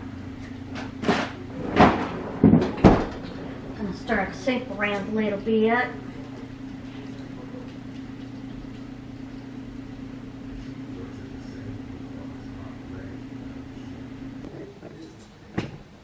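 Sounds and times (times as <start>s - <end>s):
kitchen appliance motor humming: 3.1s - 14.9s.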